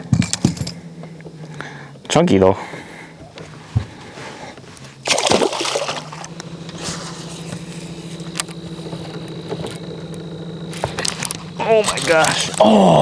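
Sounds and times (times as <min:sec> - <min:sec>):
boat motor hum: 0:00.0 - 0:13.0
splash in water: 0:05.0 - 0:06.3.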